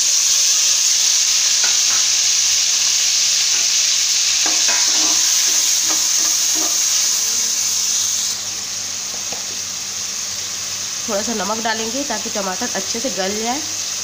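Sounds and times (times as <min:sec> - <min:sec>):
tomatoes sizzling in hot oil: 0:00.0 - 0:14.0
ladle scraping and knocking pan: 0:01.6 - 0:02.3, 0:03.4 - 0:07.0.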